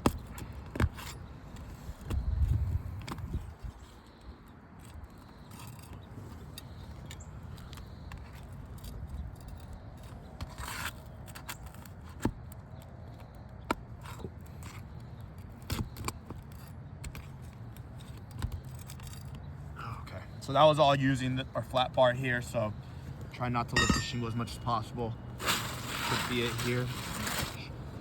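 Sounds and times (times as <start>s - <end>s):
flat bar scraping under roof shingles: 24.0s - 27.7s.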